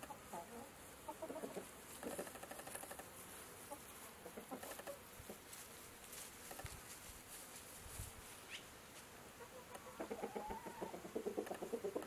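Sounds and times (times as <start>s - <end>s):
chickens clucking softly: 0.0s - 5.4s, 9.4s - 12.0s.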